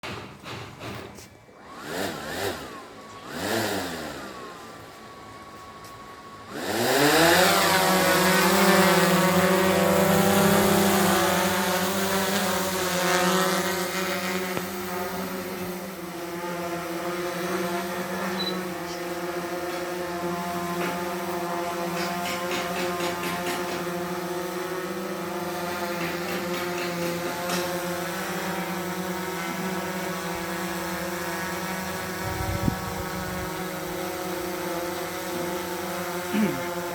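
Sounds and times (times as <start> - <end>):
drone motors high whine: 1.5 - 36.9.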